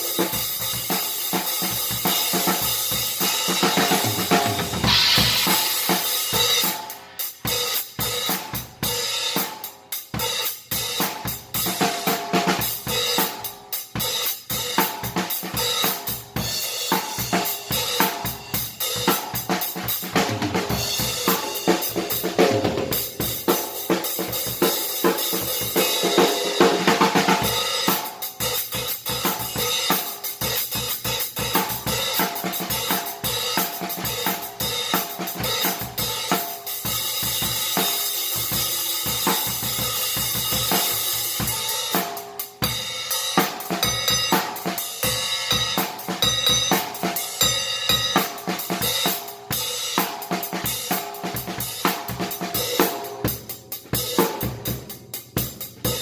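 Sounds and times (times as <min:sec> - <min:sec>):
drum kit groove: 0:00.0 - 0:56.0.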